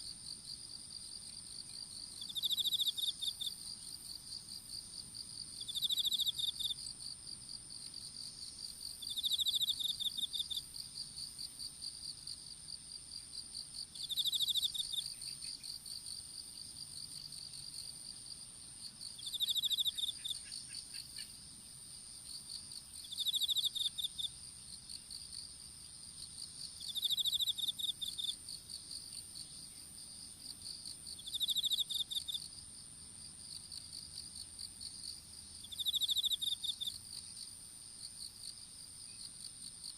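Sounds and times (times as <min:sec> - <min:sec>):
lower pulsing insect trill: 0:00.0 - 0:39.9.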